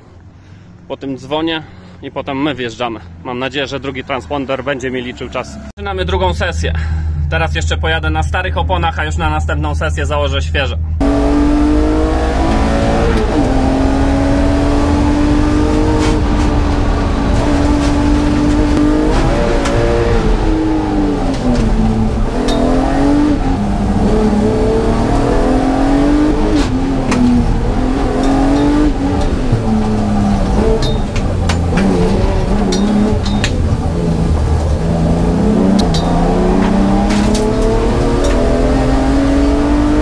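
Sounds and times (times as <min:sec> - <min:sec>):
car engine driven hard: 0:11.0 - 0:40.0.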